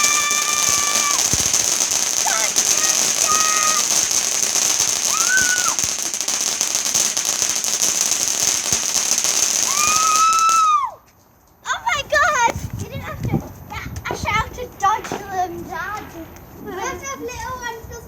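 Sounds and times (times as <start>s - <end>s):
firework crackling hiss: 0.0s - 10.9s.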